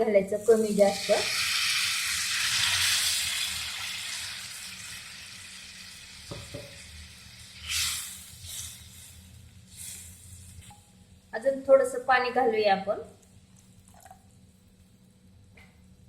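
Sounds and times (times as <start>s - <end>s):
oil sizzling in a pan: 0.4s - 10.7s.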